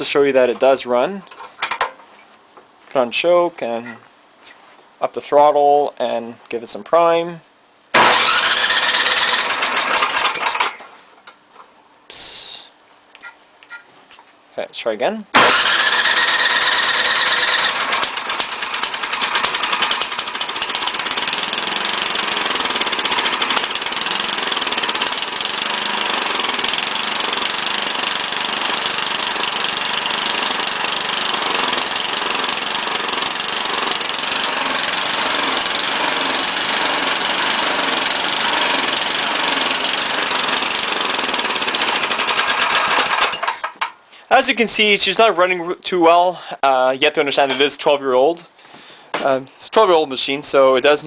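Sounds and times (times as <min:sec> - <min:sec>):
snowblower engine running roughly: 0:08.0 - 0:10.7, 0:15.4 - 0:43.4.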